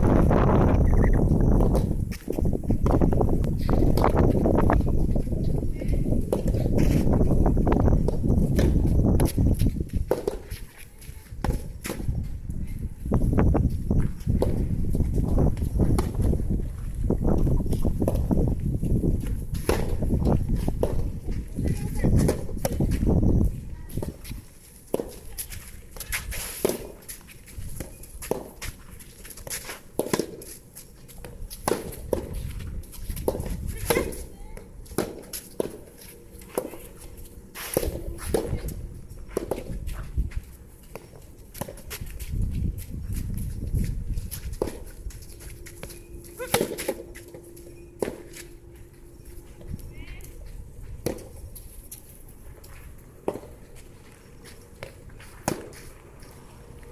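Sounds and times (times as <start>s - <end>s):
wind rumble on microphone: 0.0s - 24.5s, 31.4s - 34.6s, 37.0s - 40.7s, 41.8s - 46.3s
shuffling footsteps: 0.0s - 56.9s
rackets striking ball: 10.0s - 10.5s, 18.0s - 18.3s, 19.6s - 21.2s, 31.2s - 32.4s, 33.1s - 37.0s, 37.6s - 39.8s, 44.5s - 49.7s, 51.0s - 51.5s, 53.2s - 53.7s, 54.8s - 55.9s
tennis ball hit by rackets: 19.6s - 20.0s, 29.4s - 30.5s, 31.5s - 32.4s, 37.6s - 39.8s, 46.4s - 47.4s, 54.8s - 55.9s.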